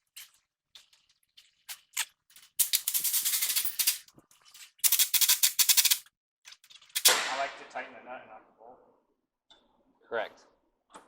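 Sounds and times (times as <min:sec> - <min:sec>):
ratchet wrench clicking: 0:04.8 - 0:06.1.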